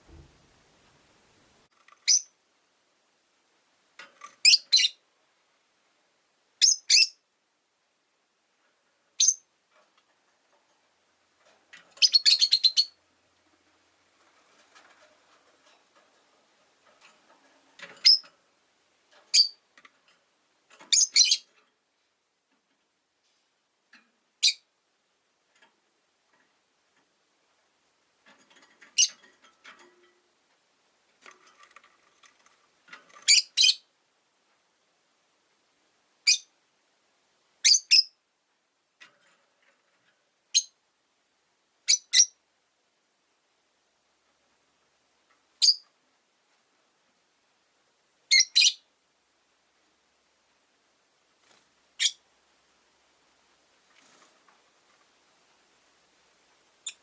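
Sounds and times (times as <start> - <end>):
lovebirds shrill chirps: 2.0 - 2.3, 4.4 - 5.0, 6.6 - 7.2, 9.2 - 9.4, 12.0 - 13.0, 18.0 - 18.2, 19.3 - 19.6, 20.9 - 21.5, 33.3 - 33.8, 37.6 - 38.1, 41.9 - 42.4, 45.6 - 45.8, 48.3 - 48.8
soft bird chattering: 12.0 - 13.0.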